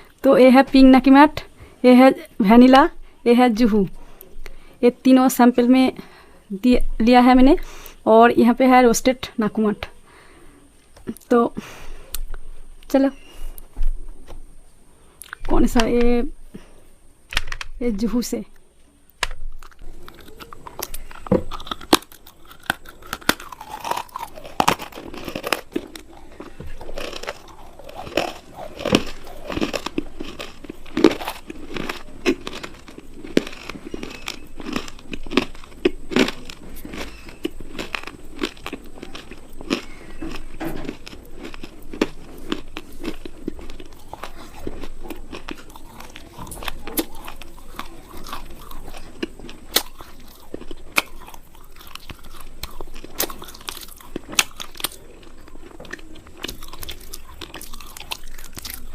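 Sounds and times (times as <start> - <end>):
crunchy food crunching: 19.1 - 58.9
chewing: 19.5 - 58.9.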